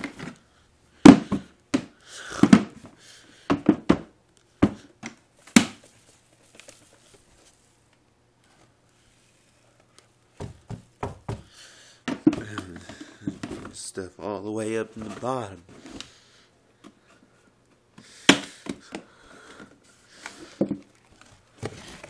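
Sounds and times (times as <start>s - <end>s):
flower pots knocking: 10.4s - 11.5s.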